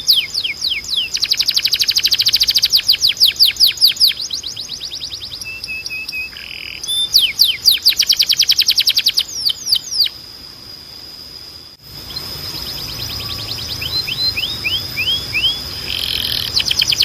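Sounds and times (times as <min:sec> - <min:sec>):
canary singing: 0:00.0 - 0:10.2, 0:11.8 - 0:17.0
steady high tone: 0:11.7 - 0:16.9.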